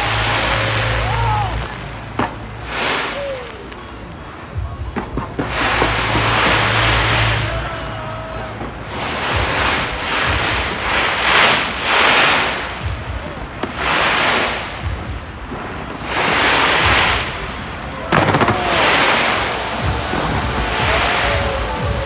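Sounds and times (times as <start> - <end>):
fireworks booming: 0.0 - 22.0
fireworks hissing: 0.0 - 22.0.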